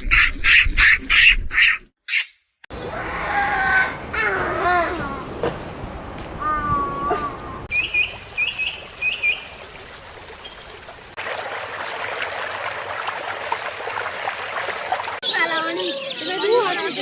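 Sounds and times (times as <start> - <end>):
high bird chirps: 7.7 - 9.6.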